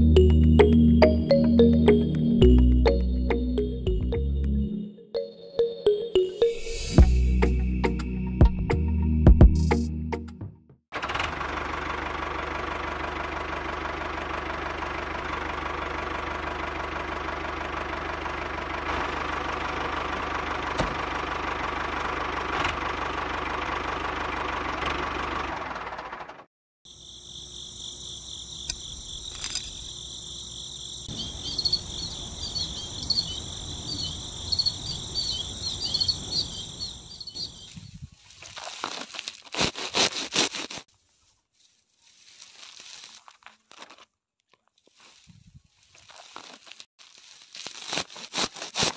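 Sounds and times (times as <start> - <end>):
insect chirring: 26.9 - 37.9.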